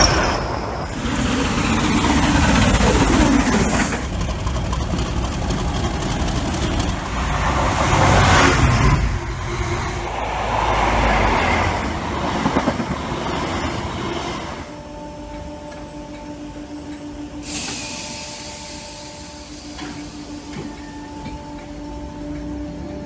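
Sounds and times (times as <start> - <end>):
electric train running: 0.0 - 23.0
sudden hiss: 17.4 - 22.9.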